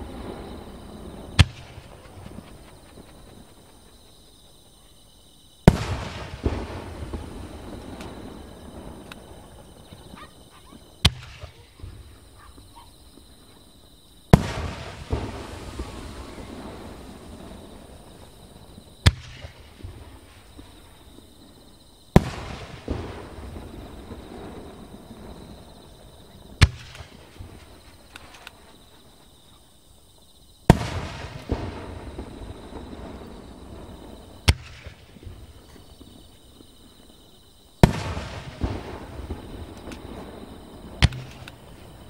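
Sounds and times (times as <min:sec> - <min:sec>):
firework burst with long echo: 0:00.0 - 0:03.9, 0:05.6 - 0:09.9, 0:14.3 - 0:27.8, 0:30.7 - 0:36.7, 0:37.8 - 0:42.0
small firework pops: 0:05.6 - 0:08.4, 0:09.0 - 0:10.3, 0:11.0 - 0:13.4, 0:19.0 - 0:21.2, 0:26.6 - 0:28.8, 0:34.4 - 0:36.8, 0:37.8 - 0:42.0
firework shells bursting: 0:14.3 - 0:18.4, 0:37.8 - 0:42.0.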